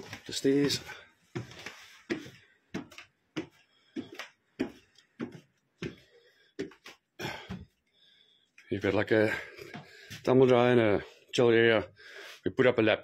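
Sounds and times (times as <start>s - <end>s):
footsteps on a staircase: 0.0s - 7.8s, 9.6s - 10.3s.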